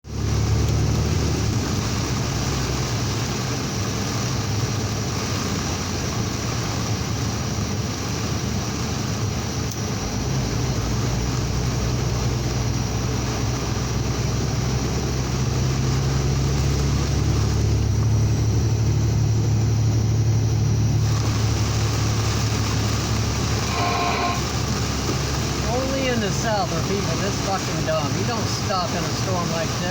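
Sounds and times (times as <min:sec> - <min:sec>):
low engine drone: 0:00.0 - 0:29.9
rain and tyre spray hiss: 0:00.1 - 0:18.2, 0:21.0 - 0:29.9.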